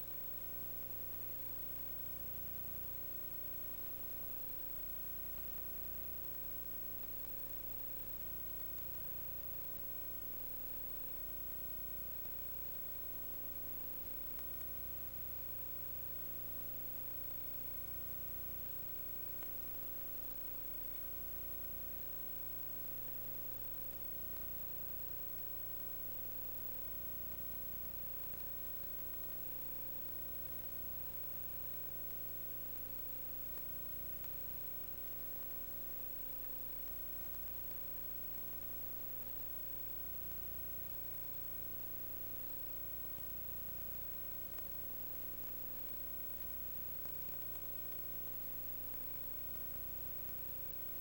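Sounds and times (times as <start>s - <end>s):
background hiss: 0.0s - 51.0s
electrical hum: 0.0s - 51.0s.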